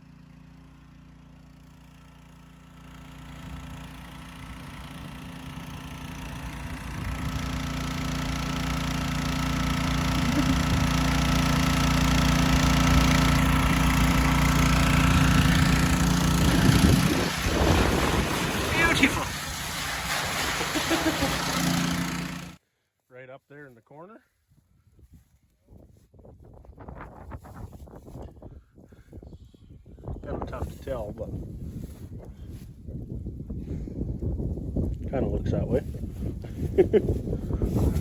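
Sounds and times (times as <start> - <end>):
engine running: 0.0 - 22.6.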